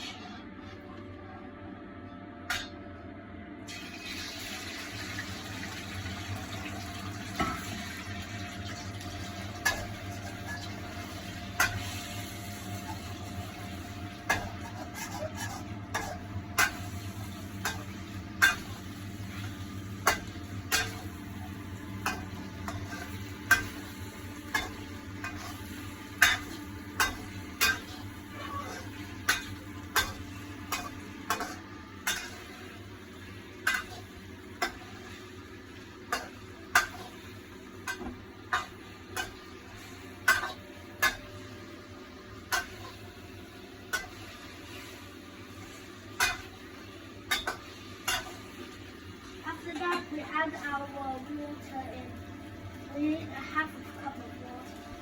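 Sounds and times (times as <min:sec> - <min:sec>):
chicken sizzling in oil: 0:03.7 - 0:55.0.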